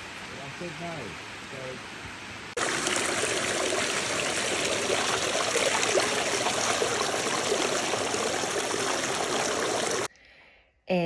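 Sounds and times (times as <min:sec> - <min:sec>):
creek water flowing at waterfall: 0:02.6 - 0:10.1.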